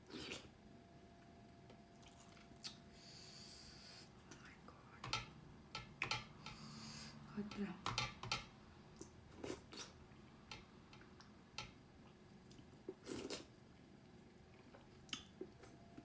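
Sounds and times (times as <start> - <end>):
chewing: 2.0 - 2.8.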